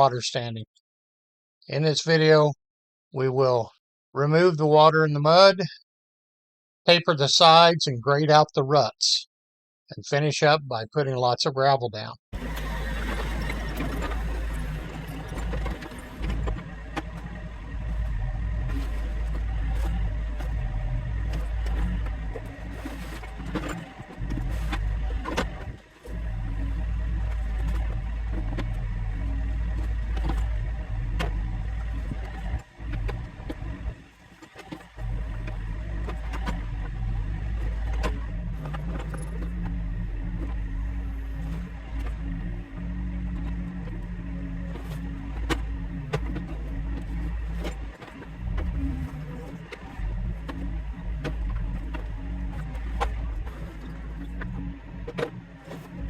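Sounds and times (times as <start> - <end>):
heavy equipment engine running: 12.4 - 56.0.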